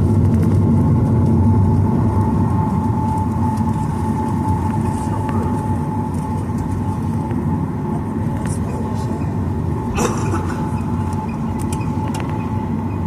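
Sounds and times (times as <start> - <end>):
jet engines rumbling in cabin: 0.0 - 13.0
steady engine whine: 0.0 - 13.0.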